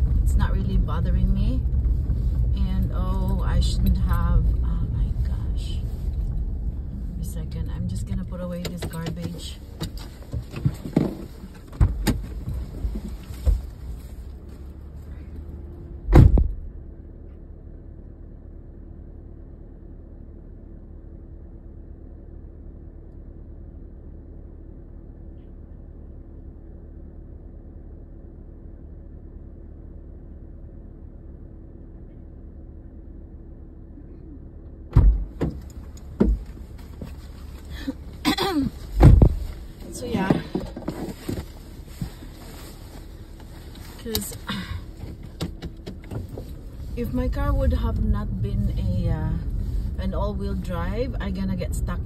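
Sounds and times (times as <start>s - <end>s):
car engine idling: 0.0s - 52.0s
knocks and rustles: 8.1s - 14.4s, 34.9s - 37.7s, 38.7s - 46.8s
car door shutting: 8.6s - 12.4s, 16.0s - 16.7s, 34.9s - 37.2s, 38.8s - 41.5s
car door slamming: 16.1s - 16.6s, 34.9s - 36.5s, 38.9s - 39.4s
thumps and knocks: 34.9s - 37.2s, 39.0s - 39.5s.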